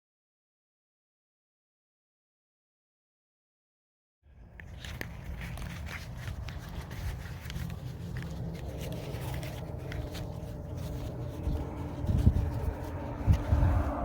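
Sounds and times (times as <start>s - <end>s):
wind rumbling on microphone: 4.4s - 14.0s
clicks and rustles: 4.5s - 13.8s.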